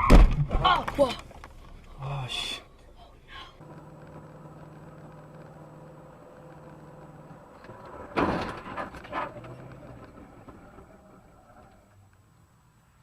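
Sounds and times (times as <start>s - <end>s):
car engine hum inside cabin: 3.6s - 8.1s.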